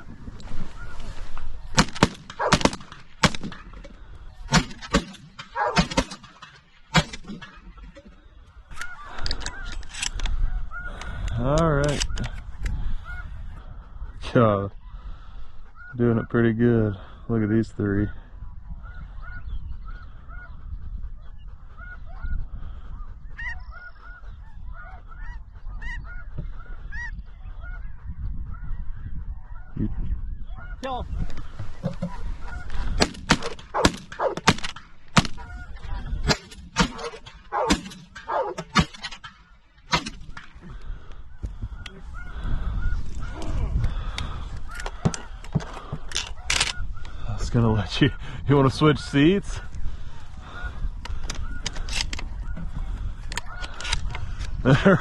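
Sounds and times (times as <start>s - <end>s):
shotgun shots: 1.7s - 3.7s, 4.5s - 7.4s, 33.0s - 35.4s, 36.2s - 39.3s
geese honking: 10.4s - 11.3s, 12.8s - 14.1s, 14.9s - 16.3s, 21.8s - 28.0s, 30.4s - 34.5s, 35.2s - 36.2s, 37.0s - 47.4s, 49.8s - 55.0s.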